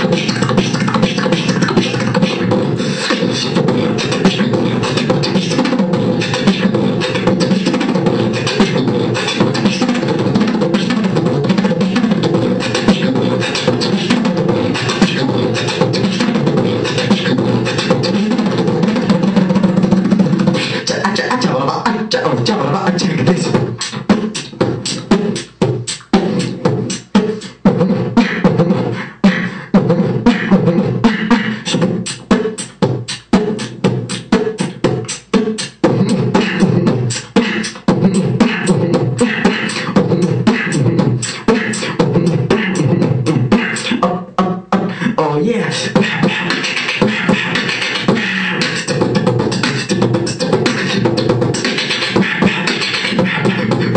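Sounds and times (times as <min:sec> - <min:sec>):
person beatboxing: 0:00.0 - 0:53.9.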